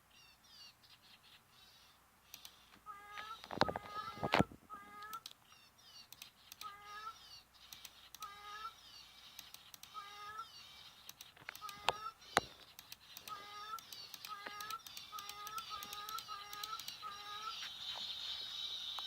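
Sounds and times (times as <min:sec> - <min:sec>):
bird chirping: 0:00.0 - 0:19.0
sharp clicks: 0:02.3 - 0:19.0.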